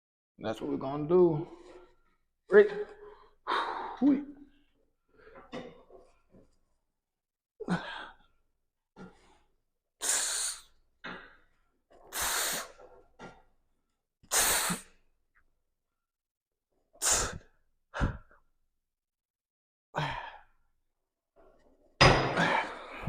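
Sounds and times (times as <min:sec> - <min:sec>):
man exhaling forcefully: 0:17.0 - 0:18.3.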